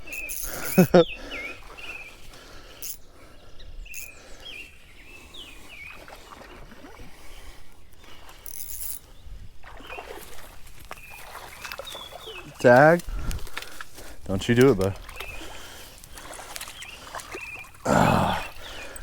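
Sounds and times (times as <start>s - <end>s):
small bird chirping: 0.0s - 2.2s, 3.6s - 5.5s.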